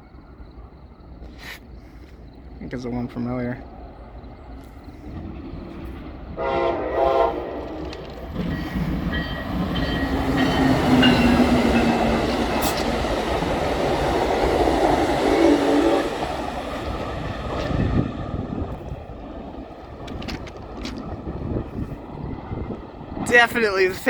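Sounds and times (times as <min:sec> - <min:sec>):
train running past: 0:00.0 - 0:24.0
train horn blasts: 0:06.3 - 0:08.0, 0:15.2 - 0:16.2.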